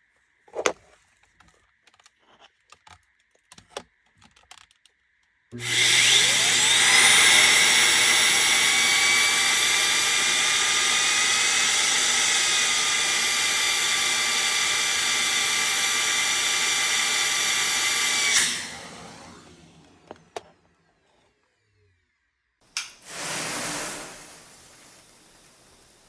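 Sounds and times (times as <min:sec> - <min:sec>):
small motor whining: 0:05.6 - 0:22.0.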